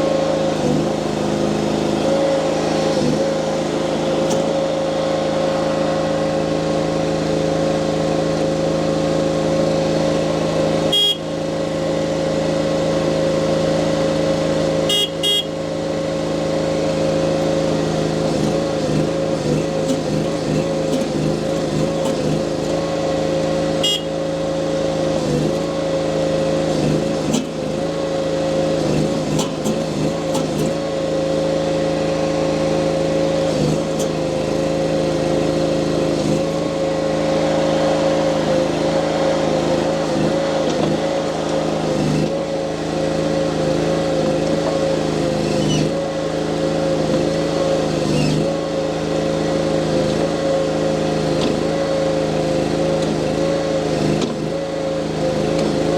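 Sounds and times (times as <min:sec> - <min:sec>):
loader engine running at high revs: 0:00.0 - 0:55.9.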